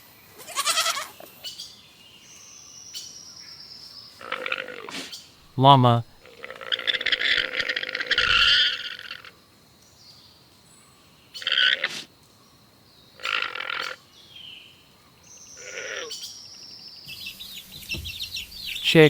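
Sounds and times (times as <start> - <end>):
llama calling: 0.4 - 1.1, 4.2 - 9.3.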